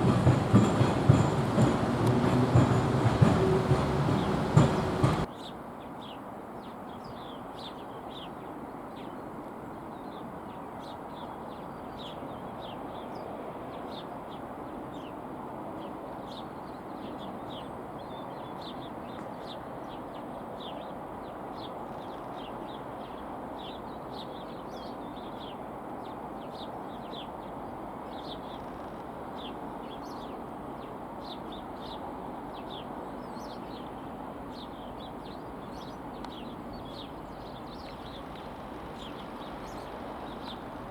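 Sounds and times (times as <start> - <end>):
small birds chirping: 0.0 - 5.3, 32.7 - 40.9.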